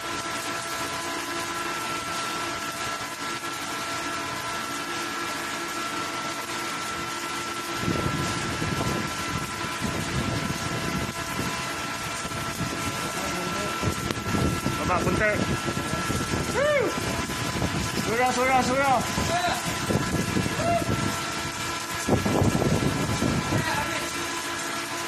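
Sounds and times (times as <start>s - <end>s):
welding machine whine and hum: 0.0s - 25.0s
arc welding hiss: 7.7s - 24.7s.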